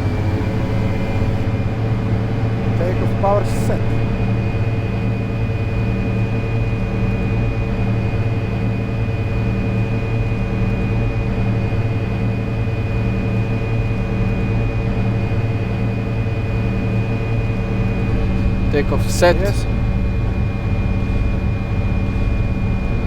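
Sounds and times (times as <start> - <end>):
jet engines droning: 0.0 - 23.0
rumble of takeoff roll: 13.7 - 23.0
low repeating throb: 16.4 - 23.0.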